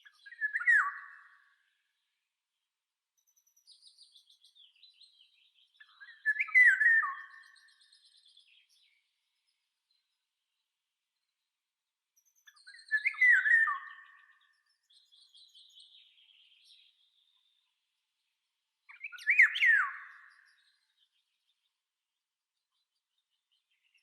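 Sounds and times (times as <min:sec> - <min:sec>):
songbird whistling phrases: 0:00.0 - 0:01.3, 0:05.5 - 0:08.0, 0:12.5 - 0:17.1, 0:18.9 - 0:20.8
high bird twittering: 0:18.9 - 0:20.6.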